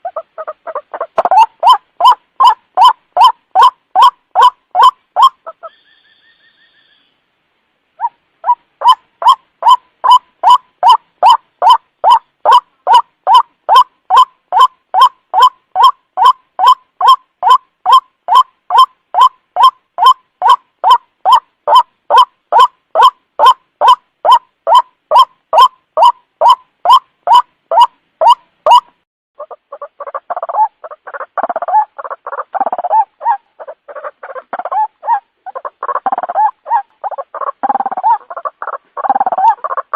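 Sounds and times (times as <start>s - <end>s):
waterhen repeated call notes: 0.0s - 6.0s, 8.0s - 39.9s
faint short whistle-like tone: 5.7s - 7.1s.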